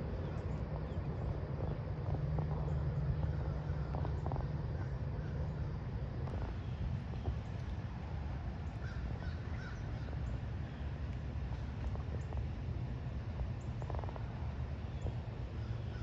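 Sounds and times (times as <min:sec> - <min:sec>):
birds calling: 0:08.7 - 0:10.9.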